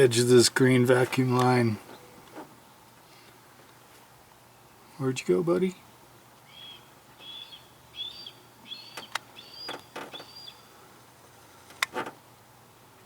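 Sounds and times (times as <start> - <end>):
songbird whistling notes: 6.4 - 10.7.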